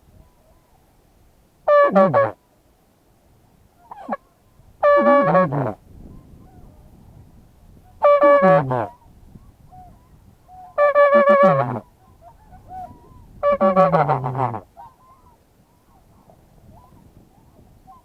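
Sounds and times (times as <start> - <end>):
duck call quacks: 1.7 - 2.4, 4.8 - 5.8, 8.0 - 9.0, 10.8 - 11.8, 13.4 - 14.9.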